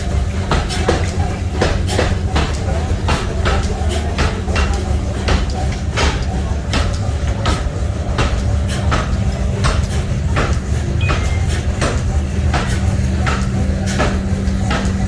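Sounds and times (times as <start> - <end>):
machinery low hum: 0.0 - 15.0
sharp knocks: 4.2 - 15.0.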